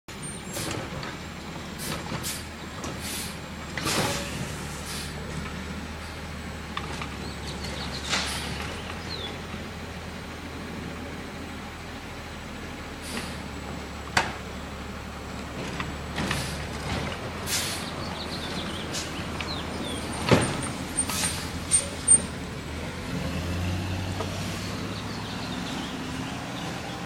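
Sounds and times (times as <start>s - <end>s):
garbage truck diesel engine: 0.1s - 27.0s
short hisses: 3.0s - 5.2s, 17.5s - 17.9s
sharp clanks and bangs: 20.2s - 22.3s.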